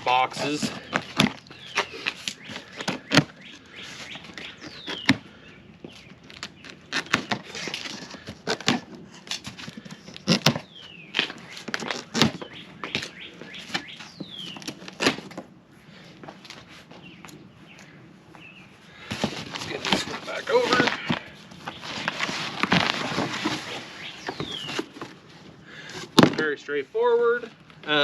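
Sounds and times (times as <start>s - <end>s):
cardboard box being handled: 19.1s - 25.3s.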